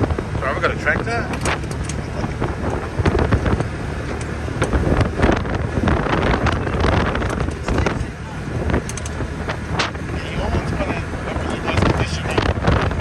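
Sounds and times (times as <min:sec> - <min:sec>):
vehicle engine running: 0:00.0 - 0:13.0
wind buffeting microphone: 0:00.0 - 0:13.0
knocks and rattles: 0:01.0 - 0:10.0.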